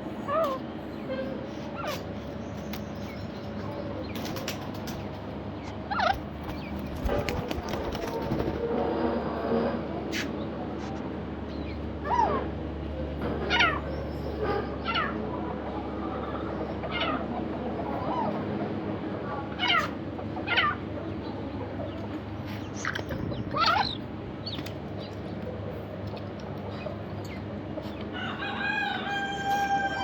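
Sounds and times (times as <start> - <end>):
chickens calling: 0.0 - 9.1, 11.5 - 30.0
rooster crowing: 28.1 - 30.0.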